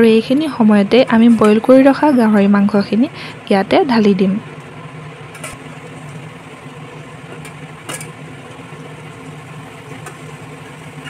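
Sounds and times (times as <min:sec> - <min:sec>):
meat frying: 0:04.4 - 0:11.0.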